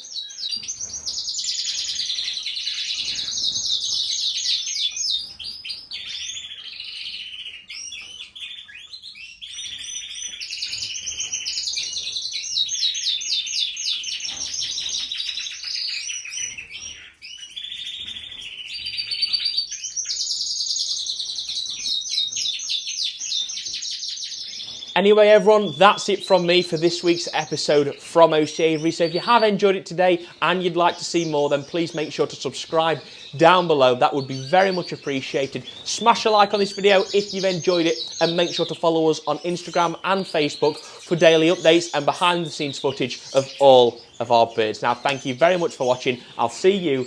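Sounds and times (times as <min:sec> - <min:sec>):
canary singing trills: 0:00.0 - 0:47.0.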